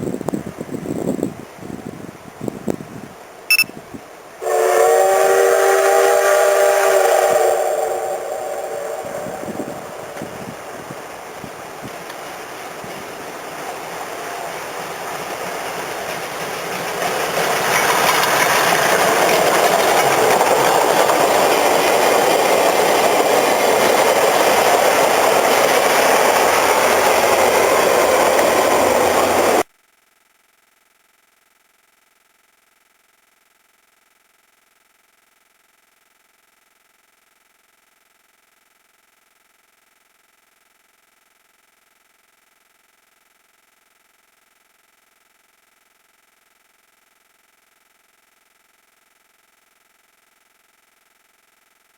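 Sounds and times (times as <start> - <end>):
steam train passing: 0.0 - 29.7.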